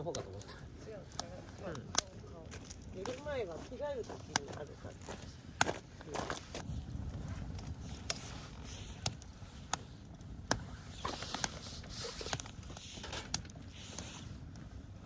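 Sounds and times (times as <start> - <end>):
burning wood popping: 0.0 - 15.0
campfire crackling: 0.0 - 15.0
low rumble: 6.6 - 12.7
soft hissing: 7.9 - 9.9, 10.6 - 14.5.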